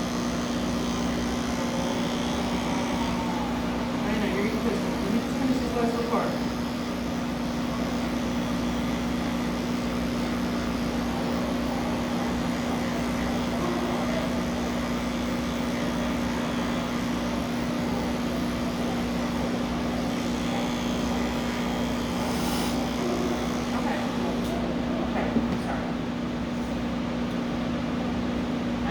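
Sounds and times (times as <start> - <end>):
electric clippers humming: 0.0 - 26.1.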